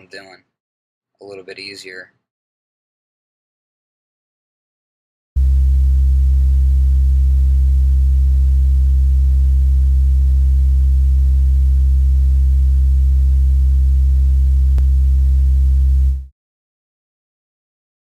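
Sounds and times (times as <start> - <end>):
low steady synth tone: 5.4 - 16.3.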